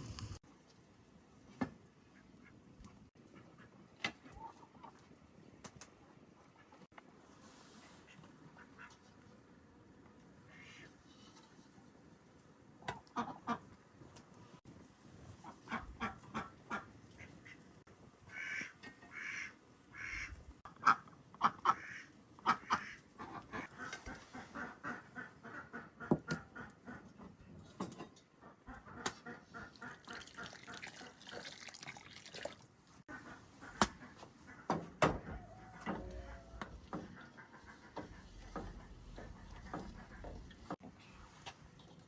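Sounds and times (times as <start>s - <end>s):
fowl honking and quacking: 18.3s - 27.1s, 33.1s - 40.8s.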